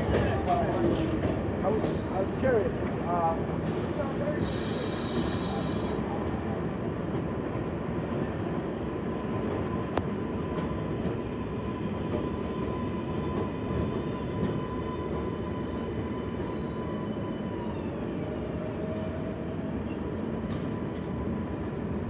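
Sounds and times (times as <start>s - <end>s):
subway train wheels rumbling: 0.0s - 22.0s
faint high whine: 3.8s - 6.0s.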